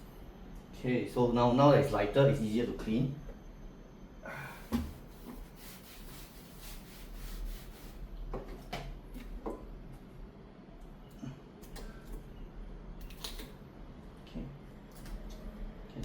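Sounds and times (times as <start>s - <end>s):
soft rubbing: 4.9s - 8.0s.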